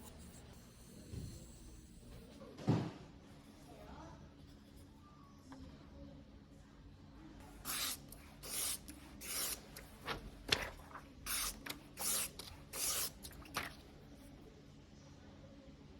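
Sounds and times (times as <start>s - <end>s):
knife rasping on whetstone: 7.7s - 9.7s, 11.3s - 13.2s.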